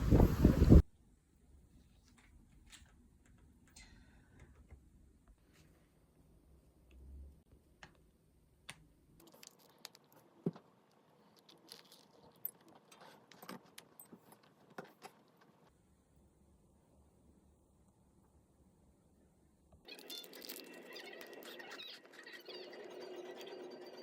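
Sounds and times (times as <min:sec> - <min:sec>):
small hard objects clinking: 0:09.2 - 0:15.7, 0:19.9 - 0:23.9.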